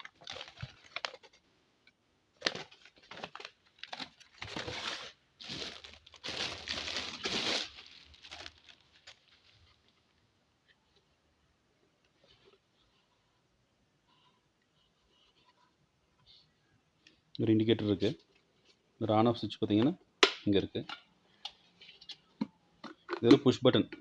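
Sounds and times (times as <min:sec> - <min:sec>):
packaging crinkling and rustling: 0:00.0 - 0:01.4, 0:02.4 - 0:09.9.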